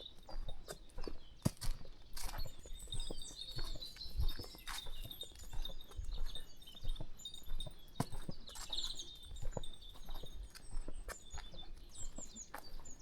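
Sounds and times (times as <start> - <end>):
footsteps on a path: 0.0 - 13.0
small birds chirping: 0.0 - 13.0.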